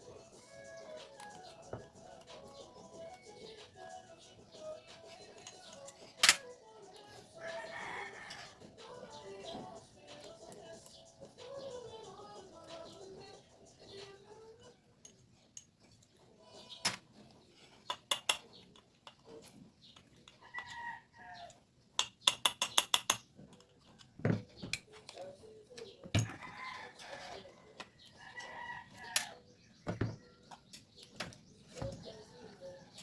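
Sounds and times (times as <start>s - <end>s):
clicks and taps of tools: 5.4s - 6.4s, 17.8s - 19.2s, 22.0s - 26.4s
rooster crowing: 7.3s - 9.3s, 20.4s - 21.5s, 26.2s - 29.5s
chickens clucking: 25.0s - 33.0s.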